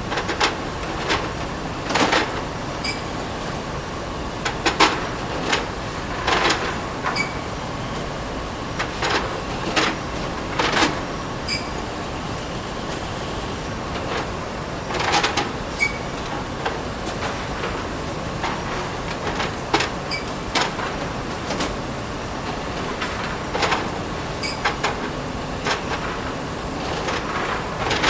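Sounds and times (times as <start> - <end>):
machinery running: 10.3 - 14.2.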